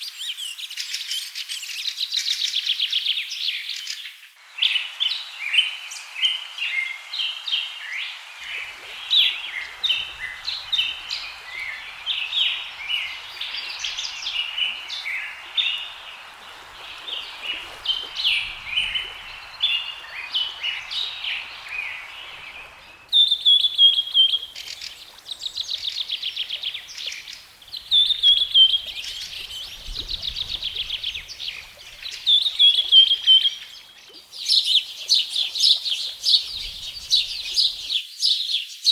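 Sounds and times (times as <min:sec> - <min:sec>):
background hiss: 0:03.8 - 0:38.8
birds chirping and calling: 0:08.5 - 0:38.4
birds whistling and trilling: 0:08.6 - 0:38.7.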